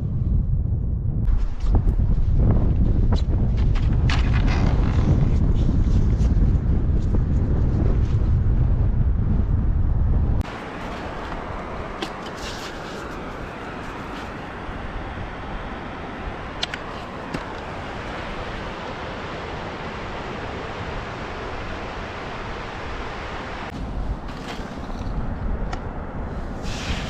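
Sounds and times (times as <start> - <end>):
wind: 0.0 - 27.0
wind buffeting microphone: 0.0 - 27.0
surf on the shore: 10.4 - 27.0.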